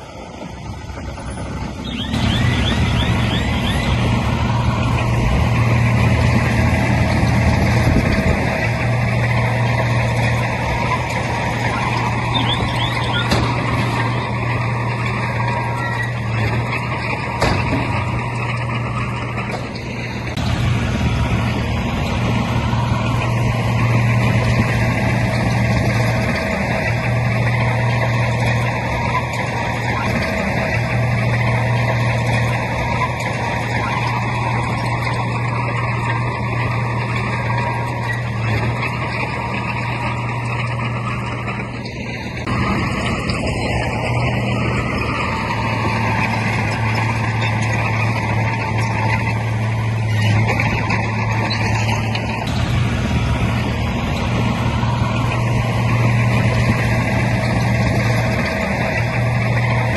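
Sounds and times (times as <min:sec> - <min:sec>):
heavy diesel engine under load: 0:00.0 - 0:59.9.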